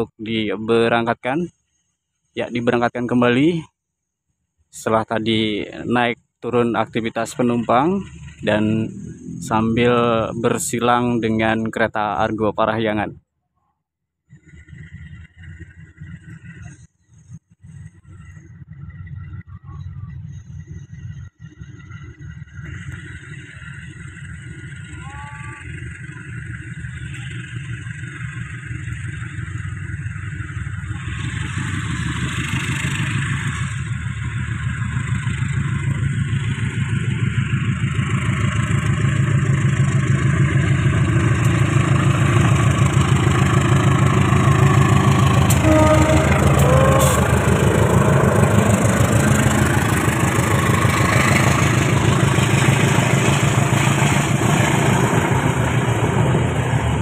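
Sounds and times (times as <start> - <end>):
diesel train engine: 0.0 - 3.7, 4.5 - 13.1, 14.3 - 57.0
wheels clattering on rails: 14.4 - 57.0
wheel squeal: 41.3 - 52.7.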